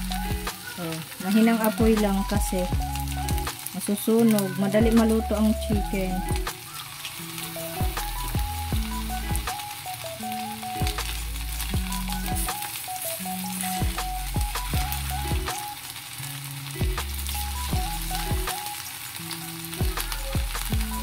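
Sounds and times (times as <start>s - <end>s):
music with deep bass beat: 0.0s - 0.8s, 1.8s - 3.6s, 4.8s - 6.6s, 7.7s - 9.7s, 10.4s - 12.6s, 13.4s - 15.7s, 16.8s - 18.7s, 19.7s - 21.0s
chicken sizzling in oil: 0.0s - 21.0s.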